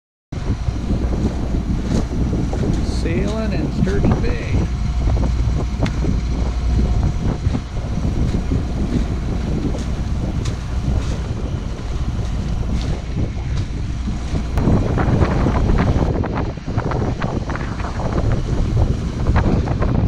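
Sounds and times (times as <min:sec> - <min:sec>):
water rushing along hull: 0:00.4 - 0:20.0
wind buffeting microphone: 0:00.4 - 0:20.0.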